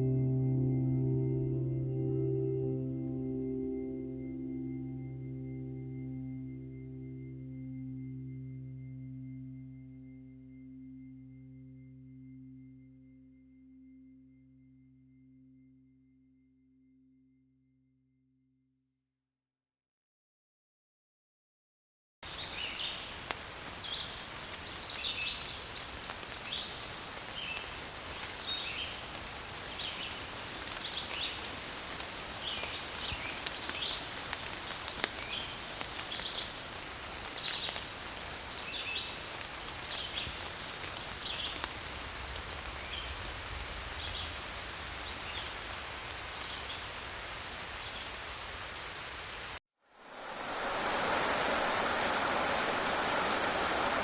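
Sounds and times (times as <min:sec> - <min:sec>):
heavy rain: 0:22.3 - 0:54.0
steady forest hiss: 0:22.3 - 0:54.0.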